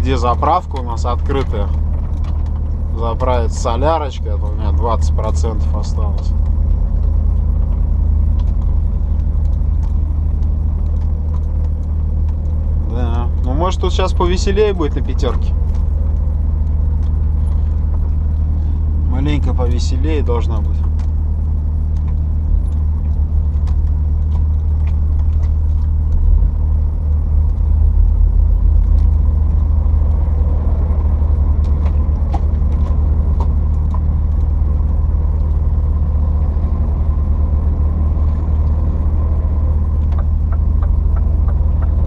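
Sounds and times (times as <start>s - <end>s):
road noise: 0.0s - 42.0s
truck diesel engine rumble: 0.0s - 42.0s
faint ticks and rattles: 0.1s - 42.0s.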